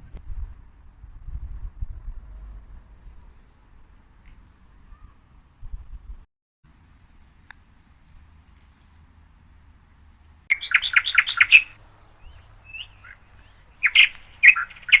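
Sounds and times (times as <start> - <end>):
bird chirping: 10.5 - 15.0.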